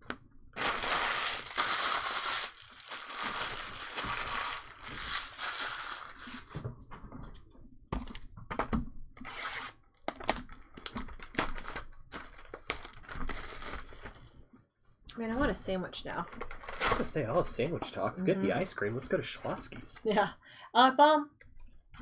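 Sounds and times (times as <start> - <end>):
crumpled wrappers crackling: 0.6 - 6.6, 10.0 - 14.4
wrappers being torn open: 0.6 - 6.6, 9.2 - 14.4.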